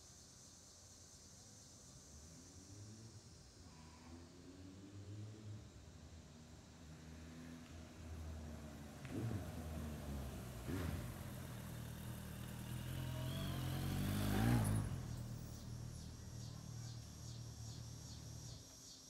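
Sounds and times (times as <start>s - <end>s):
motorcycle engine while riding: 6.8s - 18.7s.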